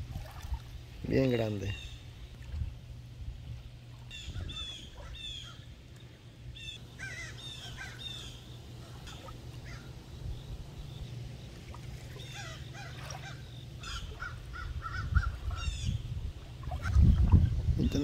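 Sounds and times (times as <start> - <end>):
warbling bird call: 4.0 - 5.8, 6.6 - 18.0
group of birds calling: 6.6 - 10.2, 12.1 - 16.0.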